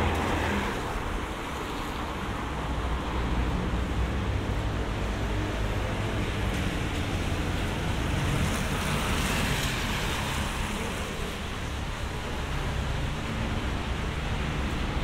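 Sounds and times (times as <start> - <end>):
low traffic rumble: 0.0 - 15.0
rain hissing on street: 0.0 - 15.0.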